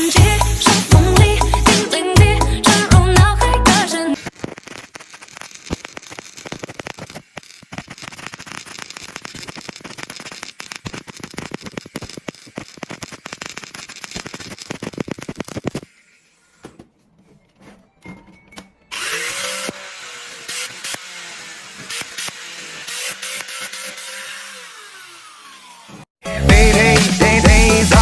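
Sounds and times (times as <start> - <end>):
scattered clicks: 4.2 - 15.8
electrode sparking on metal: 4.2 - 16.2, 19.0 - 24.5.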